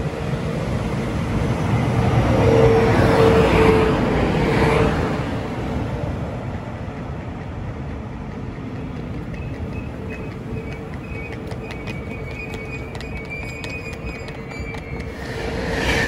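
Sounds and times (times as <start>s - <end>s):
train rumbling: 0.0s - 16.0s
high thin brake squeal: 12.1s - 16.0s.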